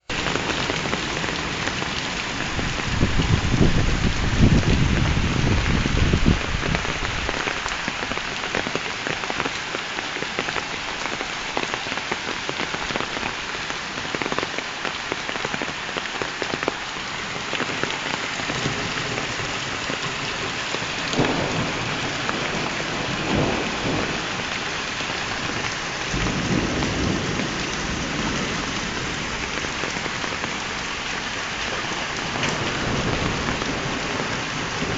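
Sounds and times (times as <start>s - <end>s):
heavy rain pouring: 0.0s - 34.9s
thunder rumbling: 0.1s - 7.6s, 17.6s - 30.6s, 32.2s - 34.9s.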